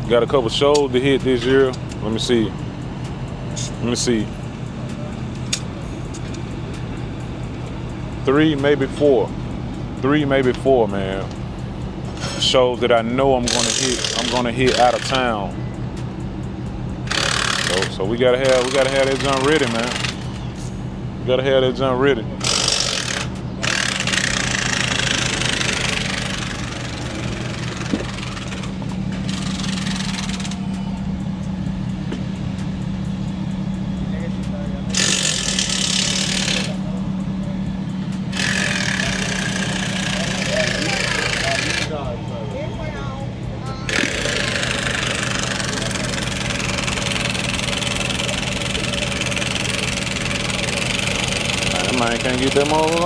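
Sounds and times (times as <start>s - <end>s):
machine hum: 0.0s - 53.0s.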